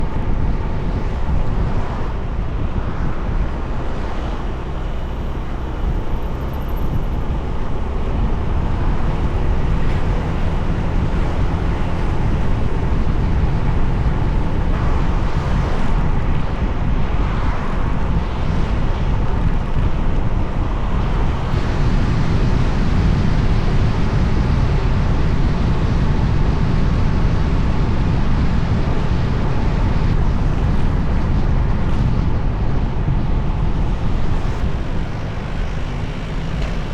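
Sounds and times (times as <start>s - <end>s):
tyres on road: 0.0s - 36.9s
wind buffeting microphone: 0.0s - 36.9s.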